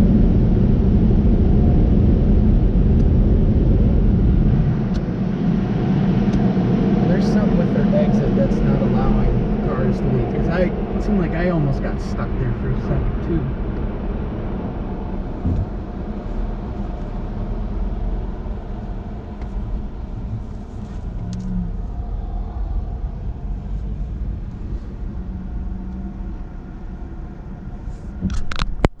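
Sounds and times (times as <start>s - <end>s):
car engine rumbling: 0.0s - 29.0s
sharp knocks: 15.4s - 15.8s.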